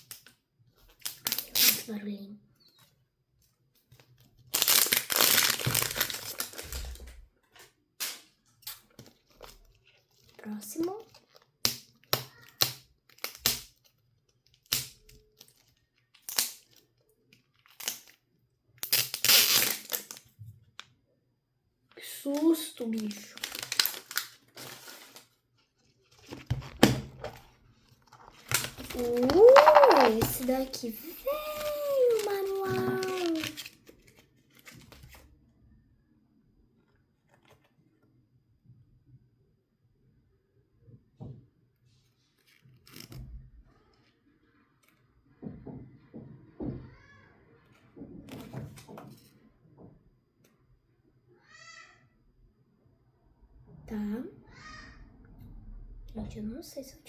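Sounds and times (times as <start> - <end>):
plastic packaging crinkling and tearing: 4.1 - 7.0, 18.8 - 20.2, 22.8 - 26.7, 27.4 - 35.3.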